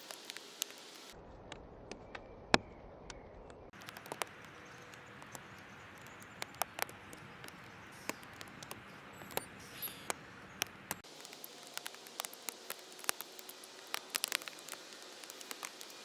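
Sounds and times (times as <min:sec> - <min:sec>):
steady hiss: 0:00.0 - 0:01.2, 0:03.8 - 0:16.0
birds pecking at seed: 0:03.7 - 0:16.0.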